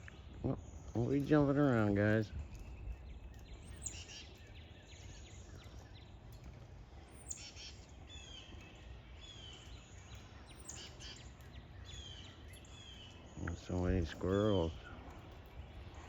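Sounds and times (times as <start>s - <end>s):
low outdoor rumble: 0.0s - 16.0s
songbirds singing faintly: 0.0s - 16.0s.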